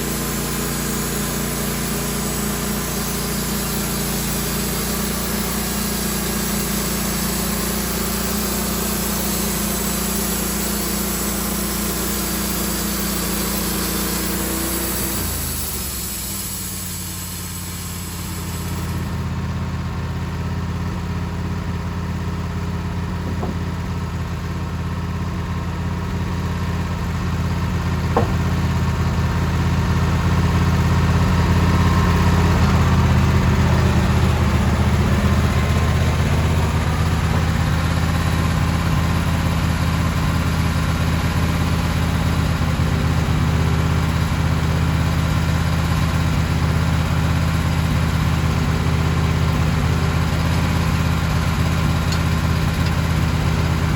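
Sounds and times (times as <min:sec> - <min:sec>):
high hiss: 0:00.0 - 0:19.2
engine running: 0:00.0 - 0:53.9.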